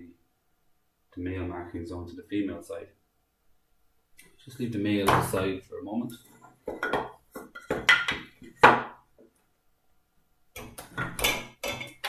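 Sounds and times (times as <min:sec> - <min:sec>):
wood knocking on workbench: 0:06.7 - 0:09.0.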